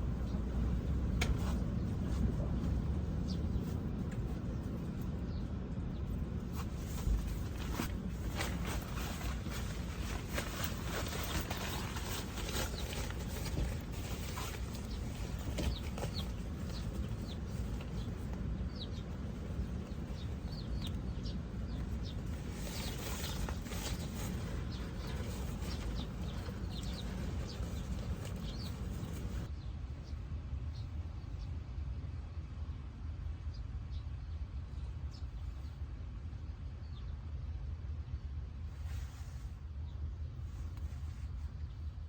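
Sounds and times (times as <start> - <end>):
small birds chirping: 0.0 - 31.5
low rumble: 0.0 - 33.5.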